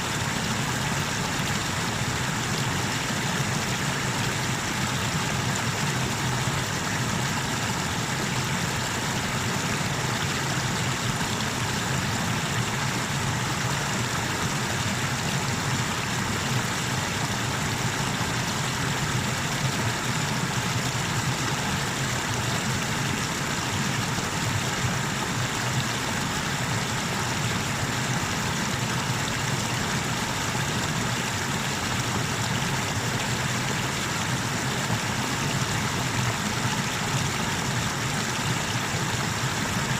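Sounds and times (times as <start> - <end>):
waterfall rushing: 0.1 - 39.9.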